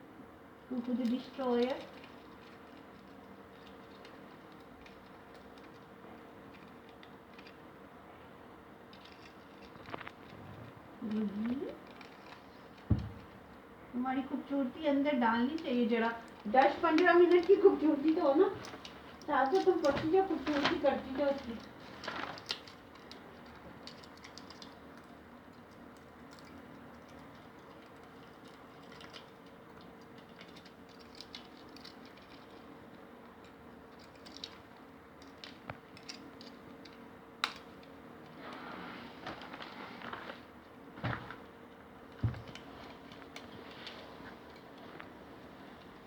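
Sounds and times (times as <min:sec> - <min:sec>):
faint steady hum: 0:00.0 - 0:46.0
parrot picking at paper and cardboard: 0:00.7 - 0:07.7, 0:08.9 - 0:13.6, 0:15.2 - 0:46.0
small clicks and scratches: 0:00.7 - 0:13.6, 0:14.9 - 0:46.0.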